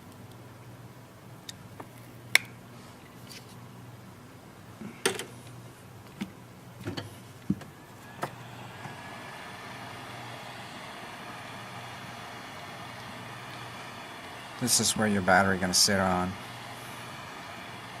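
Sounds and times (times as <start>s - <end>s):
low steady hum: 0.0s - 18.0s
steady hiss: 7.2s - 18.0s.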